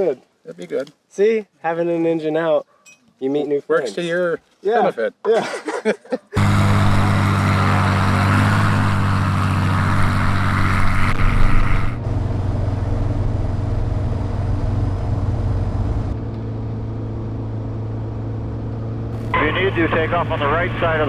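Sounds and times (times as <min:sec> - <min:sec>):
light aircraft engine drone: 0:06.4 - 0:21.0.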